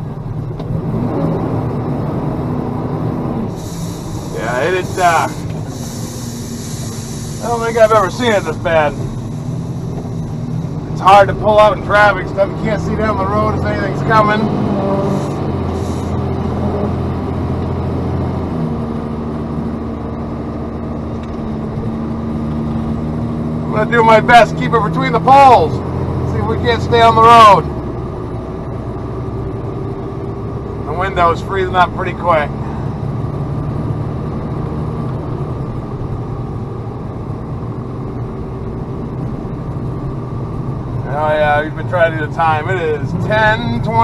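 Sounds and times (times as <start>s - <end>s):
diesel truck engine running: 0.0s - 44.0s
road noise: 0.0s - 44.0s.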